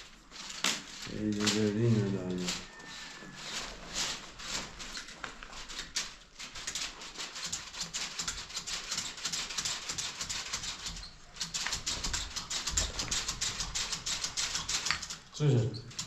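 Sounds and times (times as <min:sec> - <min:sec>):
rapid scraping or tapping: 0:00.0 - 0:16.0.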